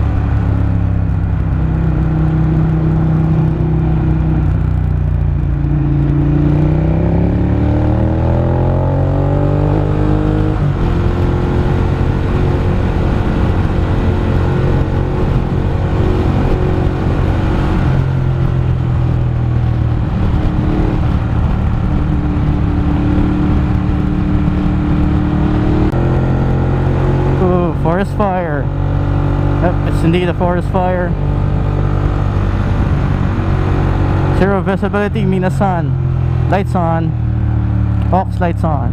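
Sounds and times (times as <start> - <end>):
road and tyre noise: 0.0 - 38.9
vehicle engine accelerating: 0.0 - 38.9.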